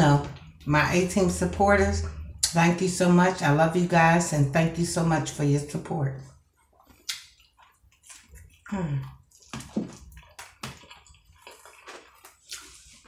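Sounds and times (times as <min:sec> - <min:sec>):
crunchy taco being chewed: 0:06.3 - 0:13.0
person humming: 0:08.7 - 0:09.2.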